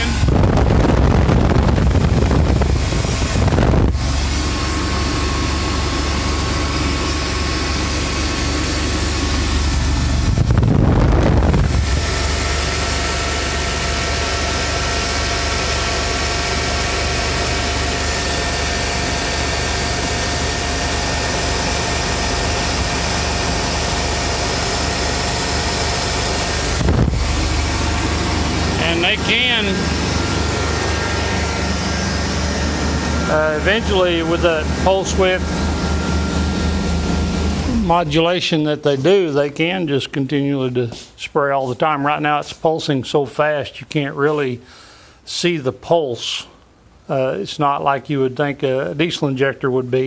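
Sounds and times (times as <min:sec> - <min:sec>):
car engine idling: 0:00.0 - 0:38.4.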